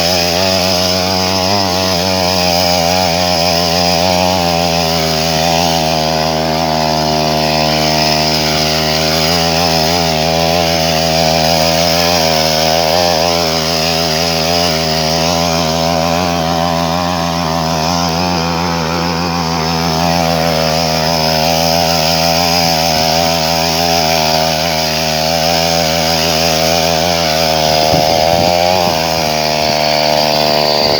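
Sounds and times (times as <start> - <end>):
two-stroke tiller engine buzzing: 0.0 - 30.9.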